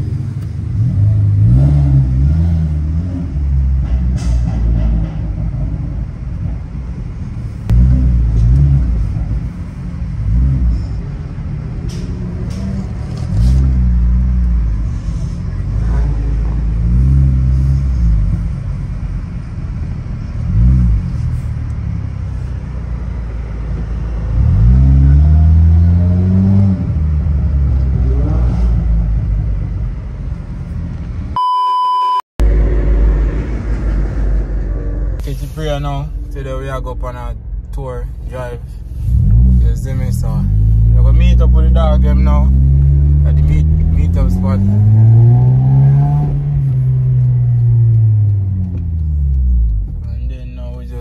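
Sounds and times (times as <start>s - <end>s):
car engines revving: 0.0s - 31.4s, 32.4s - 51.0s
electronic beep tone: 31.4s - 32.2s
low rumble: 32.4s - 51.0s.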